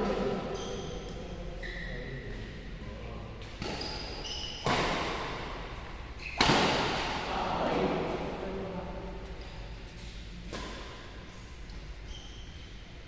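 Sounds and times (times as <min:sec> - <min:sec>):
shoes squeaking on court floor: 0:00.0 - 0:02.6, 0:03.4 - 0:06.8, 0:09.3 - 0:13.0.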